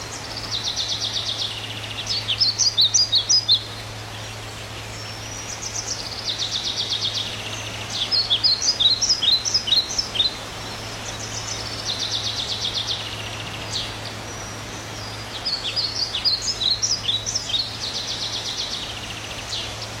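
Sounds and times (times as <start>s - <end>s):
bird trilling and chirping: 0.8s - 4.3s.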